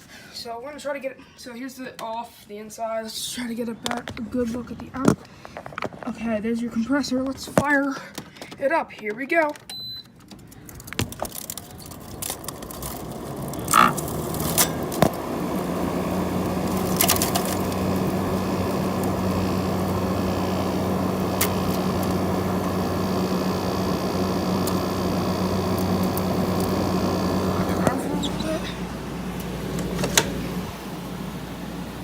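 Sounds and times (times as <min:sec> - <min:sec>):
air conditioner fan spinning: 0:10.2 - 0:32.0
compressor humming: 0:10.5 - 0:32.0
sharp clicks: 0:18.6 - 0:28.6.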